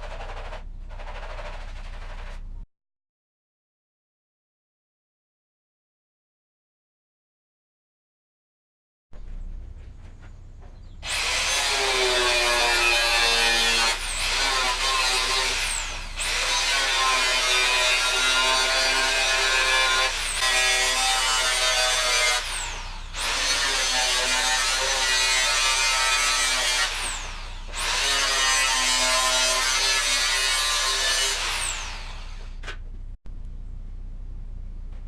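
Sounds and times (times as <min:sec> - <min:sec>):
power tool running: 0:11.0 - 0:32.6.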